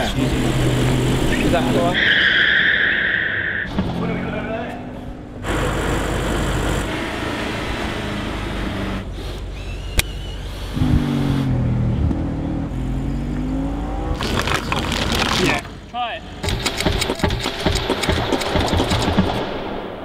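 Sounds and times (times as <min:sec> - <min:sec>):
car engine revving: 0:00.0 - 0:09.4, 0:10.6 - 0:14.8
sharp click: 0:16.4 - 0:19.4.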